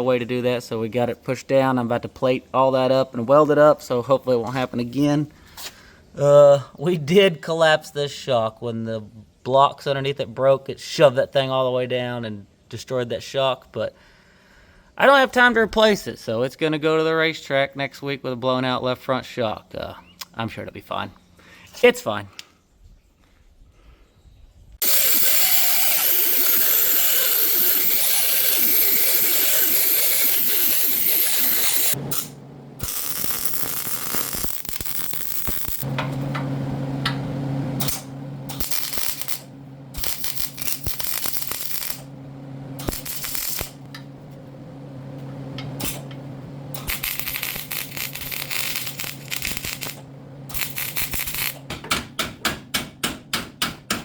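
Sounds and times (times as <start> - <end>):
welding on steel frame: 24.8 - 36.4, 37.8 - 44.6, 45.2 - 51.7
low hum: 25.6 - 52.7.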